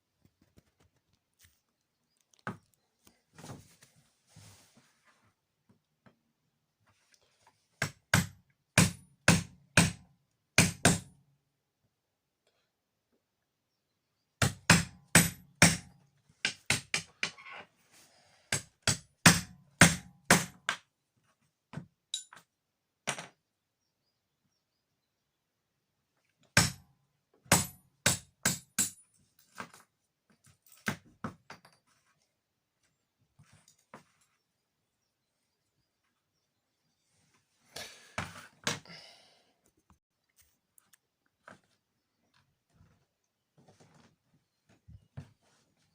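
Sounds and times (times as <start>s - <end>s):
hammer strikes: 7.8s - 10.0s, 27.5s - 29.0s.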